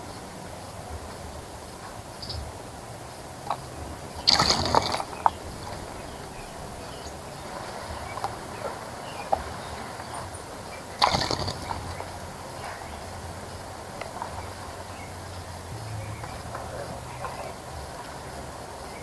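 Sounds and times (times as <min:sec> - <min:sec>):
insects humming: 0:02.1 - 0:19.0
bird splashing in water: 0:03.4 - 0:12.6.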